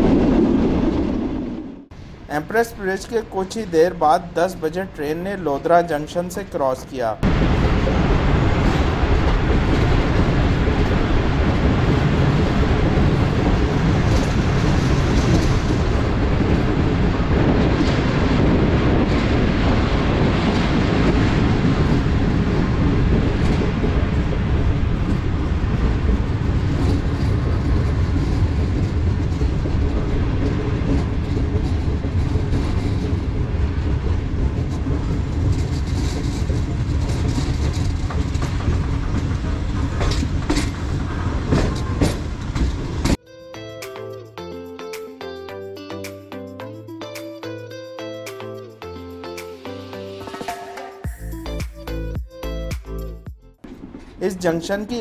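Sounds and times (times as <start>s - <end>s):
train wheels rumbling on rails: 0.0s - 43.2s.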